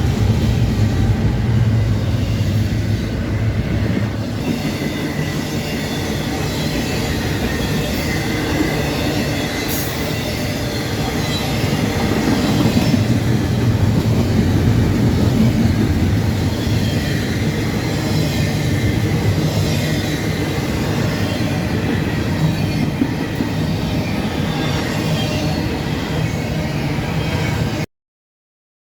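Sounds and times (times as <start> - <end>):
train rumbling past: 0.0 - 27.9
faint high wheel squeal: 4.4 - 13.0.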